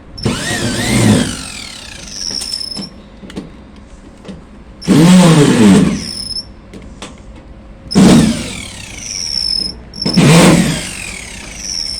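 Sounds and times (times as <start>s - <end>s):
electric drill motor whining: 0.2s - 2.9s, 4.8s - 6.5s, 7.9s - 11.9s.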